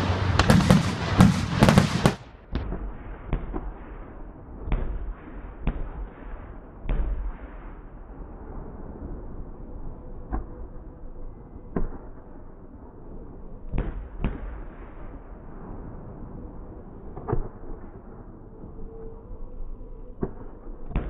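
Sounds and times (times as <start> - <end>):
background rush: 0.0 - 2.5
fireworks bangs: 0.0 - 7.6.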